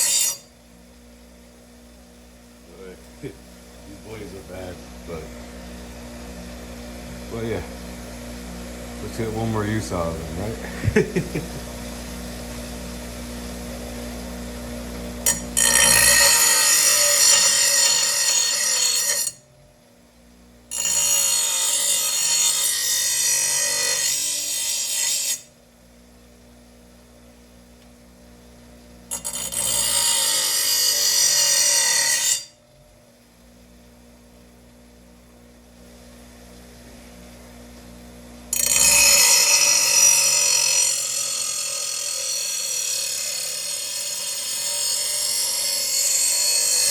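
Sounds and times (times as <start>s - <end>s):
grinder sharpening metal blade: 0.0s - 0.5s, 15.2s - 19.4s, 20.7s - 25.5s, 29.1s - 32.6s, 38.5s - 46.9s
steady low hum: 0.0s - 21.6s, 25.4s - 31.0s, 32.4s - 42.1s.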